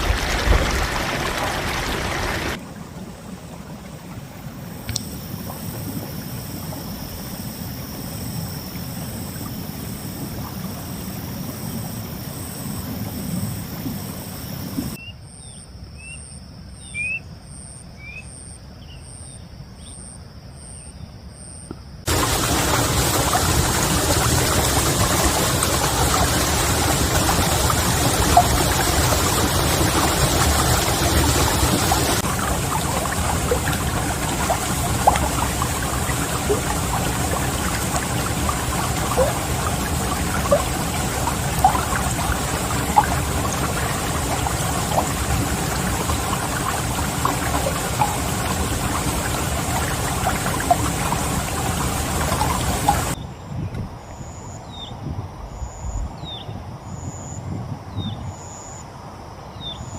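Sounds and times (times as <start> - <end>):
heavy rain falling: 0.0 - 2.6, 22.1 - 53.2.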